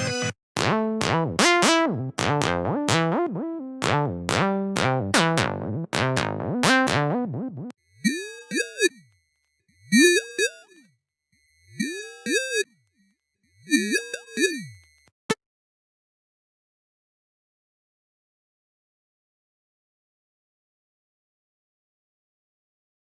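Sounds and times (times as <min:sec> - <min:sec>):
punchy synth bass notes: 0:00.0 - 0:07.7
gliding synth notes: 0:11.8 - 0:12.6.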